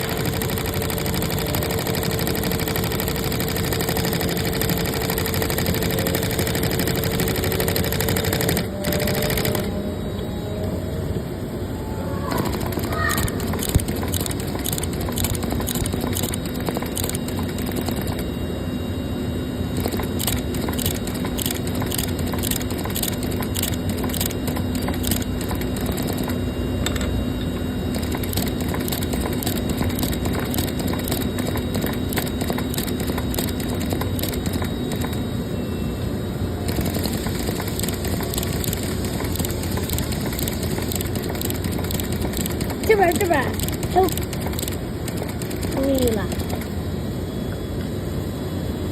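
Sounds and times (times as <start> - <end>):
sewing machine needle clatter: 0.0 - 9.7, 12.4 - 18.2, 19.8 - 27.1, 27.9 - 35.2, 36.7 - 46.7
faint machine hum: 0.0 - 48.9.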